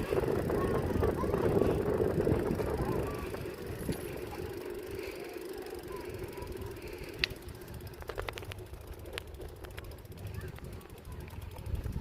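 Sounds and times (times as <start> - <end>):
bicycle rolling and wind noise: 0.0 - 12.0
sharp bicycle click: 0.0 - 12.0
rattling clicks: 7.0 - 10.7.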